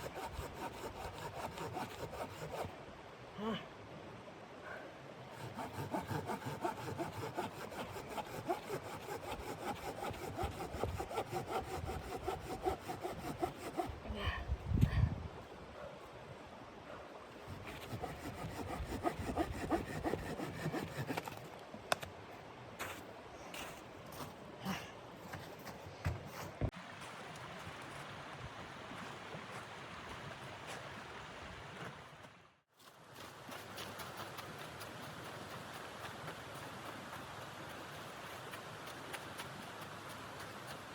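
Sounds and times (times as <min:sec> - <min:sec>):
hand saw cutting wood: 0:00.0 - 0:02.8, 0:05.3 - 0:14.0, 0:17.4 - 0:21.5.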